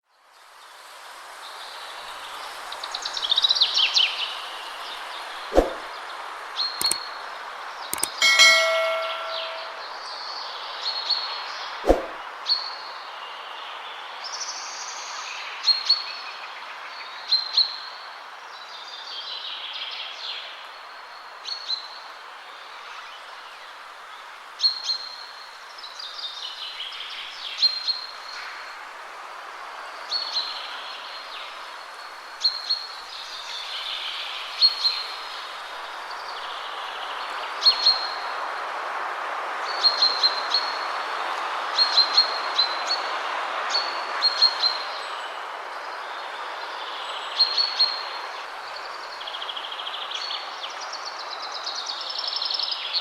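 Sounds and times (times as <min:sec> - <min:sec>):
wind through trees: 0:00.1 - 0:09.9, 0:11.6 - 0:53.0
brief ringing tone: 0:08.0 - 0:09.9.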